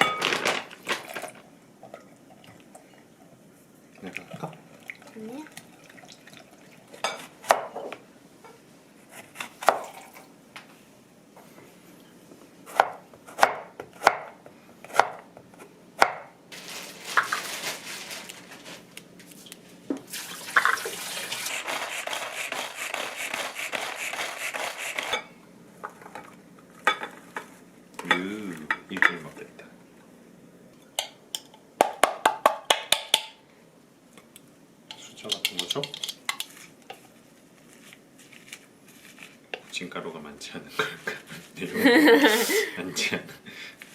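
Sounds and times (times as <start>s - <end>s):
knife chopping on cutting board: 12.7s - 15.2s.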